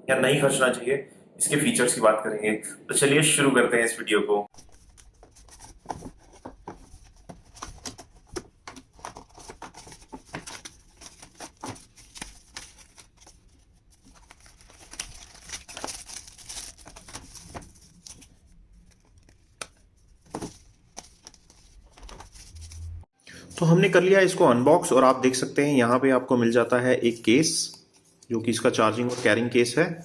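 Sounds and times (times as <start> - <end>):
packaging tearing and crinkling: 8.9 - 18.3.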